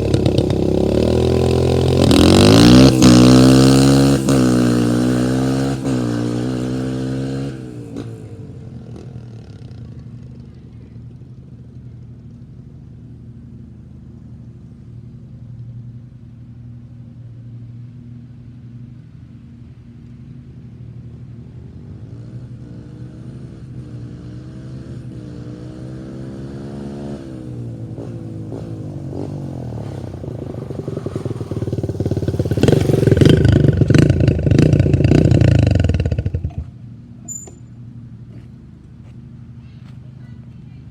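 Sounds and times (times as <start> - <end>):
dirt bike engine revving: 0.0 - 9.4, 22.2 - 37.7.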